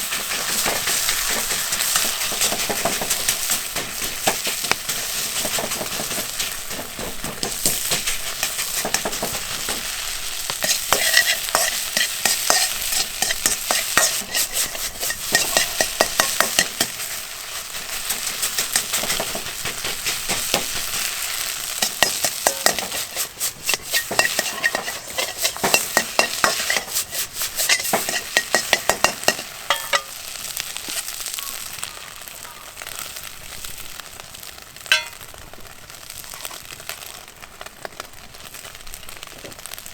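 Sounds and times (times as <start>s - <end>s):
spatula scraping wok: 0.0s - 31.2s, 34.9s - 35.2s
rice sizzling in a wok: 0.0s - 39.9s.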